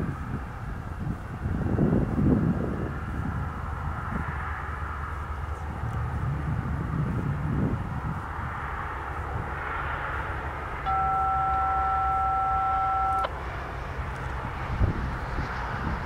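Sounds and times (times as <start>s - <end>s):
low steady rumble: 0.0s - 16.0s
electronic two-tone beep: 10.9s - 13.3s.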